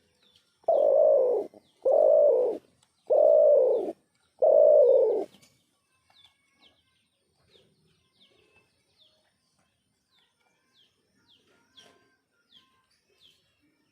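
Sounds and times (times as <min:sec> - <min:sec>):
dove cooing: 0:00.6 - 0:05.3.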